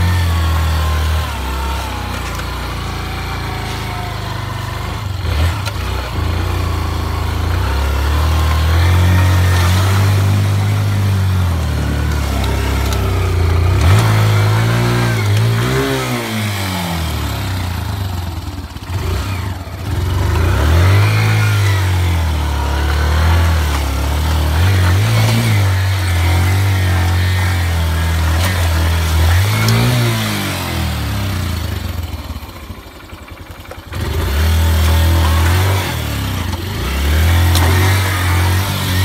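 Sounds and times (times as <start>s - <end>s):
off-road vehicle engine revving: 0.0s - 39.0s.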